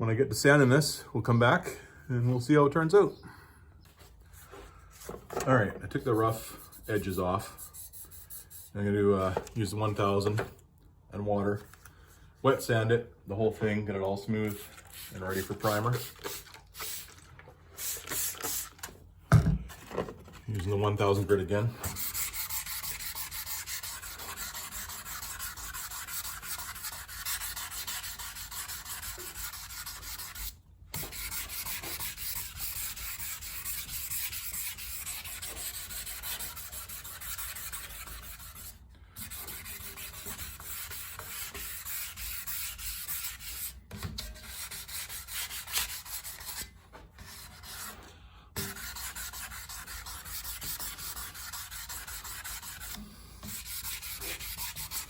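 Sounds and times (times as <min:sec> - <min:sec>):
wet sanding by hand: 0:06.0 - 0:08.8, 0:14.4 - 0:17.2, 0:21.0 - 0:43.8, 0:44.4 - 0:48.0, 0:48.6 - 0:55.0.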